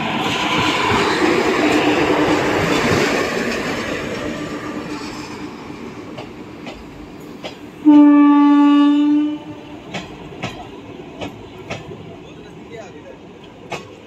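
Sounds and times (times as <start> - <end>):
train horn blast: 7.8 - 9.8
wheels clicking over rail joints: 9.8 - 12.1, 12.9 - 14.0.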